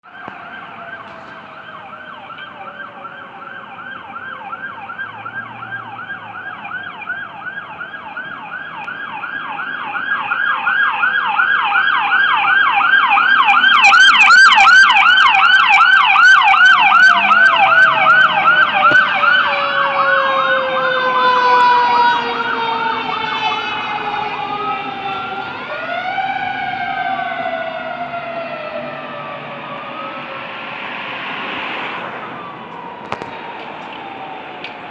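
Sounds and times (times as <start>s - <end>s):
electronic siren yelping: 0.0s - 31.2s
siren wail: 0.0s - 34.9s
slow falling siren tone: 0.0s - 34.9s.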